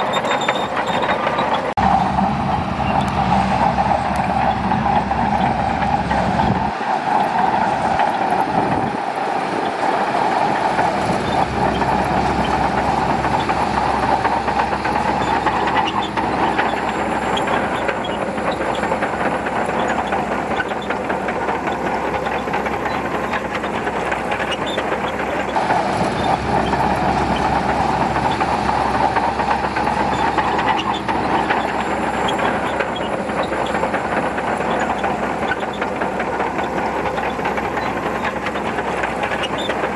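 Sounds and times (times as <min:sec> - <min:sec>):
bulldozer diesel engine running: 0:00.0 - 0:39.9
steel tracks clattering: 0:00.0 - 0:39.9.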